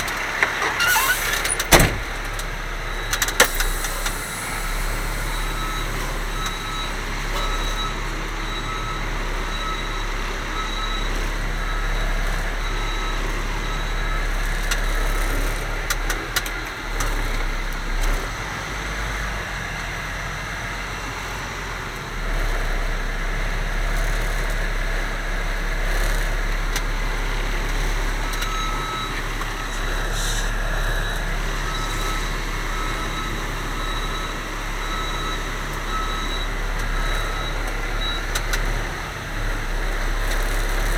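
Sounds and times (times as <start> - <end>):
truck engine running: 0.0 - 40.9
backup alarm beeping: 2.8 - 15.0, 28.1 - 38.4.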